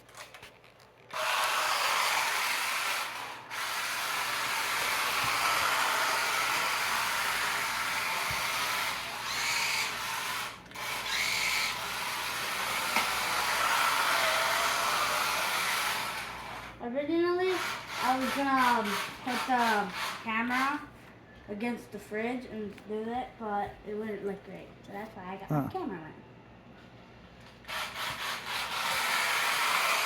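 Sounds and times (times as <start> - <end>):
electric motor whine: 1.1 - 16.6.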